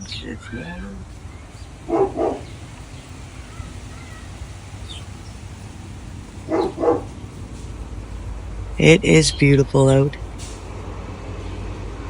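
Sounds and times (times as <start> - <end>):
dog barking: 1.9 - 2.5, 6.4 - 7.1.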